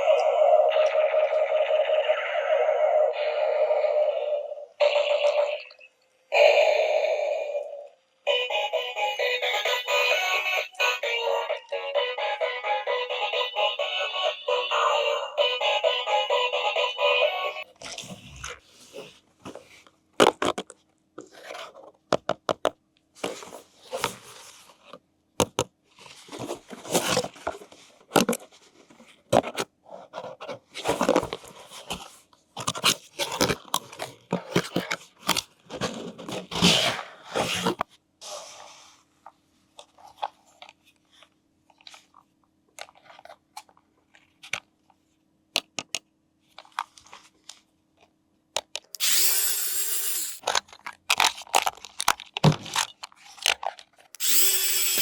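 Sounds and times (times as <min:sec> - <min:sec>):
plastic packaging crinkling and tearing: 0:50.4 - 0:54.0.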